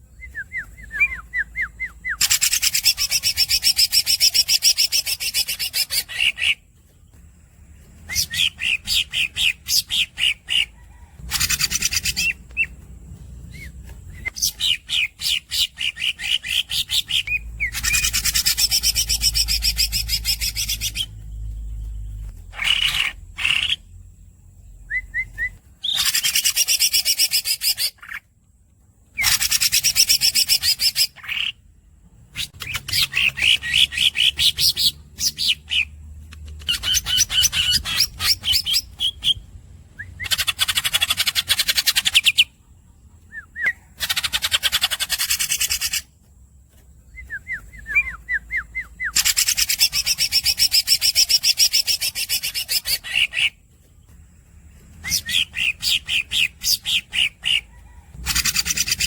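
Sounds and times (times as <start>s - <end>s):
bird chirps: 0.0s - 59.0s.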